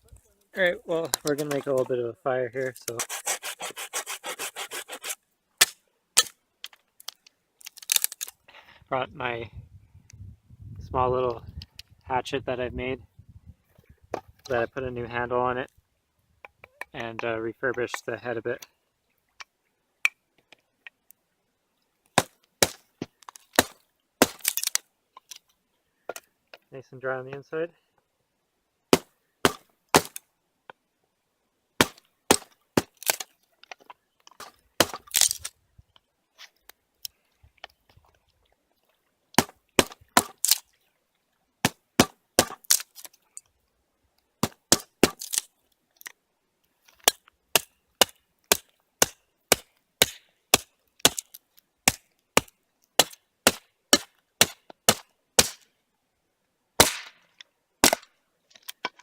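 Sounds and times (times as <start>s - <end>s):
hatchet chopping wood: 2.9s - 6.4s, 22.2s - 22.8s, 23.5s - 24.7s, 28.9s - 30.2s, 31.8s - 33.3s, 34.4s - 35.4s, 39.4s - 40.6s, 41.6s - 43.0s, 44.4s - 45.5s, 47.0s - 55.6s, 56.8s - 57.2s, 57.8s - 58.1s.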